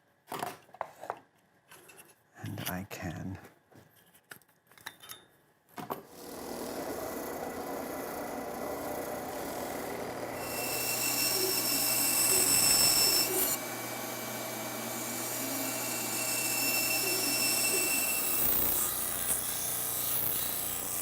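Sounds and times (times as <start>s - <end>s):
power tool high whine: 6.1s - 21.0s.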